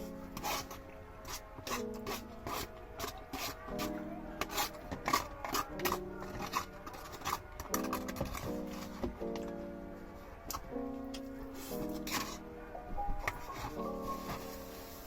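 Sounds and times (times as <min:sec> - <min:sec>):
eating scraping and rubbing: 0:00.0 - 0:09.1, 0:11.5 - 0:12.5, 0:13.3 - 0:15.0
background music with held notes: 0:00.0 - 0:15.0.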